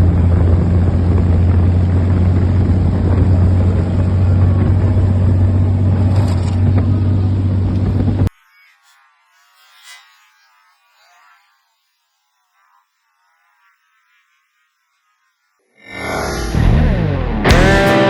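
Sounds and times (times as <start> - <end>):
engine-like drone: 0.0 - 8.3, 15.8 - 18.0
rushing noise: 15.8 - 18.0.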